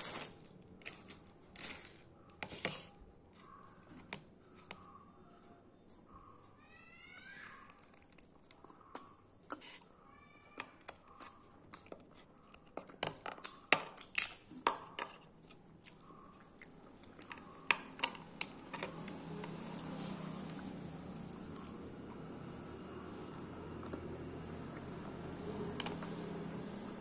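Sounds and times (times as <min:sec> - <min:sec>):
chewing with mouth clicks: 0:07.4 - 0:09.9, 0:10.8 - 0:14.6, 0:15.2 - 0:26.7.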